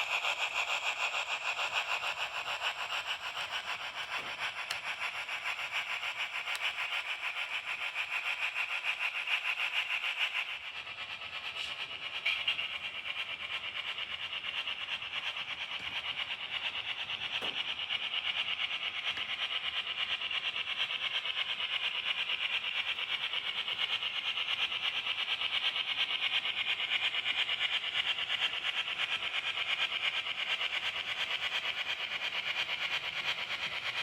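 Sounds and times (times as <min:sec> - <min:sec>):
model train whirring: 0:00.0 - 0:34.0.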